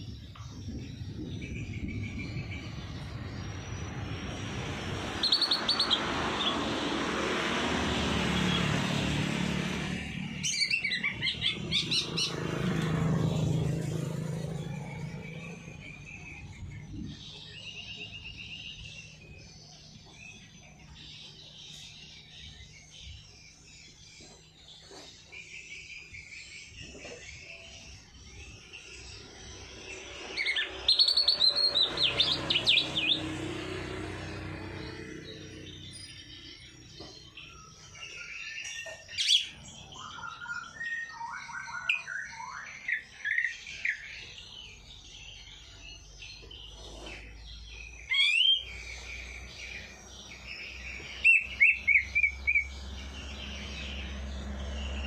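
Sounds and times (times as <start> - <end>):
broad rushing noise: 0.0 - 15.1
songbirds chirping and trilling: 0.0 - 55.0.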